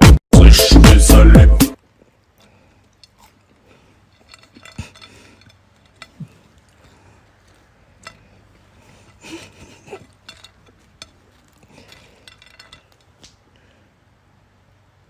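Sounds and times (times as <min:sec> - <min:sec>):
light clinks and taps: 0:02.4 - 0:13.4.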